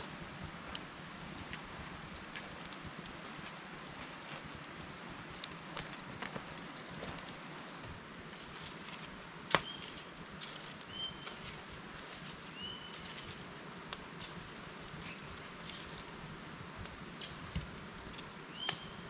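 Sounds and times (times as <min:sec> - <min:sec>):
steady hiss: 0:00.0 - 0:19.0
small clicks: 0:00.7 - 0:07.9
bird whistled calls: 0:10.9 - 0:11.3, 0:12.6 - 0:13.0, 0:18.5 - 0:19.0.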